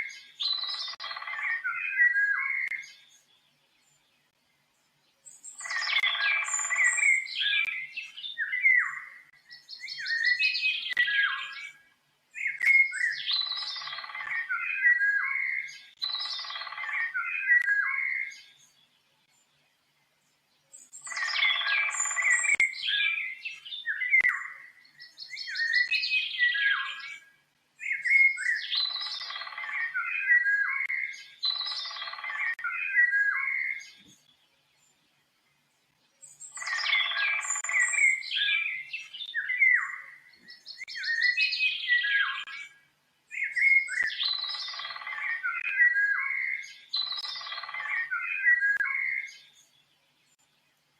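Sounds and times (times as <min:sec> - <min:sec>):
songbird warbling: 0:00.0 - 0:03.1, 0:05.2 - 0:18.6, 0:20.8 - 0:34.3, 0:36.2 - 0:49.6.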